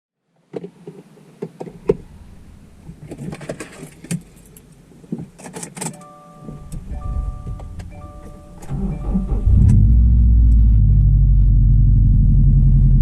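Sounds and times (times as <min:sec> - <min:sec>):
car electronic warning chime: 0:06.0 - 0:10.5.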